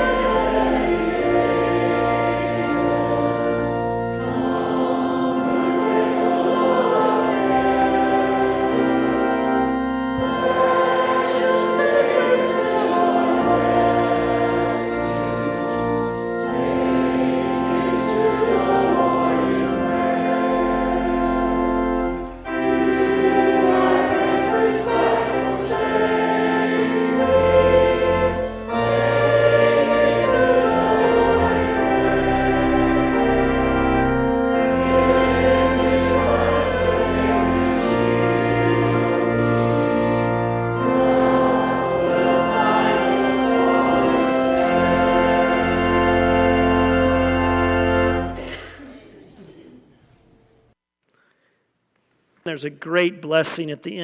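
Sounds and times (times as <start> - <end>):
choir singing a hymn: 0.0 - 49.3
organ: 0.0 - 49.6.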